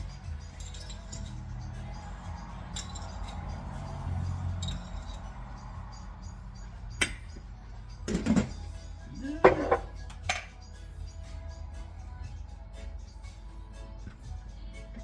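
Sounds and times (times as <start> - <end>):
utensils clinking on cookware: 0.0 - 5.8, 7.0 - 7.4, 8.0 - 8.6, 9.2 - 10.6.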